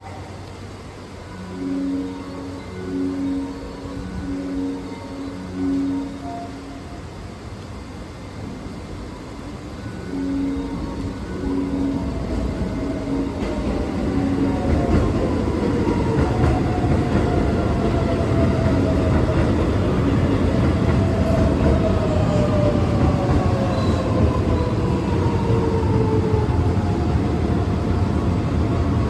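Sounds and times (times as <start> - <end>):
train wheels rumbling on rail: 7.4 - 29.0.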